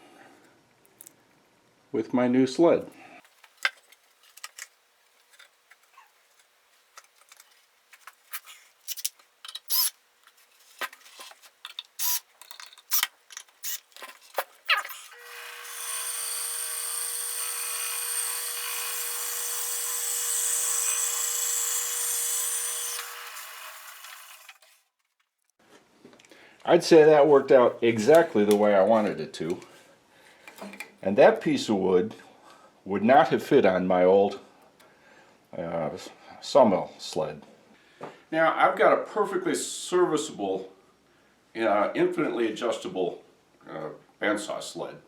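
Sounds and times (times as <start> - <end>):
bandsaw cutting wood: 14.7 - 24.8.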